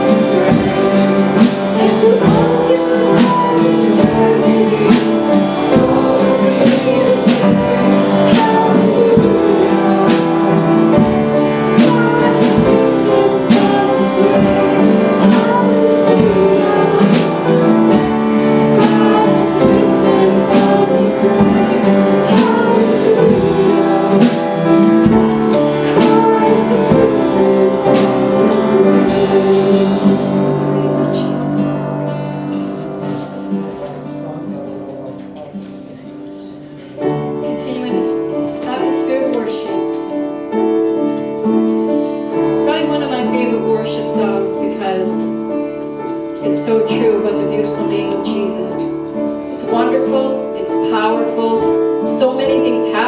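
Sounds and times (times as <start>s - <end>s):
person singing: 0.0s - 39.9s
worship band playing: 0.0s - 53.0s.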